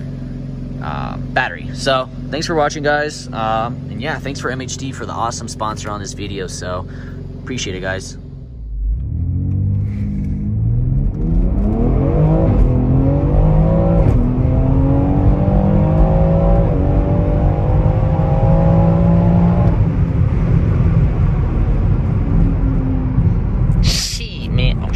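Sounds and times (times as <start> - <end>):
car engine accelerating through gears: 6.8 - 23.9.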